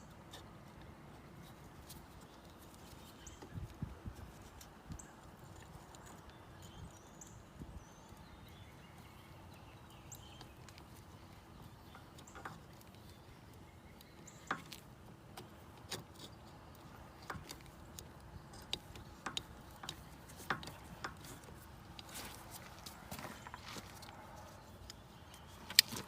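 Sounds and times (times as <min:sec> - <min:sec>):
hand tools clicking and knocking: 0:14.2 - 0:23.6.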